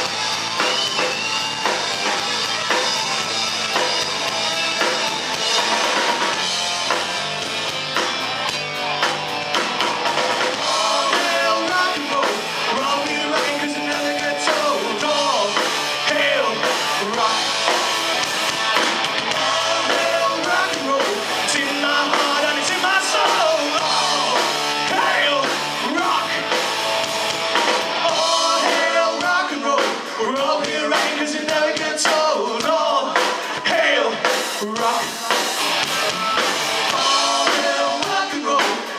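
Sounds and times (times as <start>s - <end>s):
bass guitar: 0.0s - 29.8s, 34.6s - 38.6s
drum kit: 0.0s - 38.9s
electric guitars: 0.0s - 38.9s
person singing: 10.5s - 18.3s, 19.3s - 26.7s, 27.5s - 38.9s.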